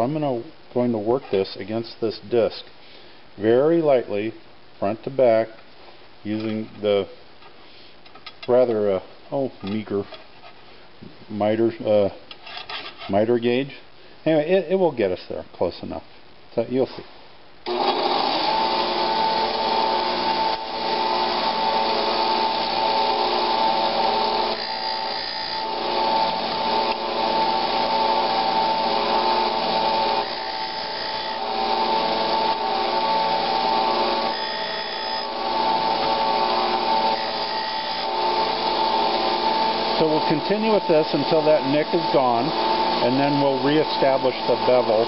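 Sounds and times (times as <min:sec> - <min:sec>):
disc sander grinding steel: 0:17.7 - 0:45.0.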